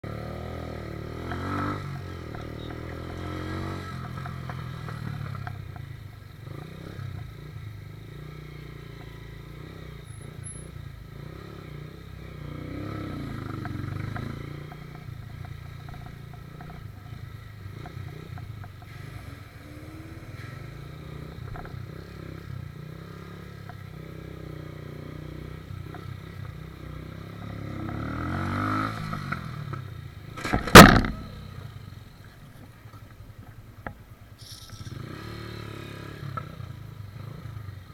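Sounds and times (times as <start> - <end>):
motorcycle engine running: 24.9 - 32.2.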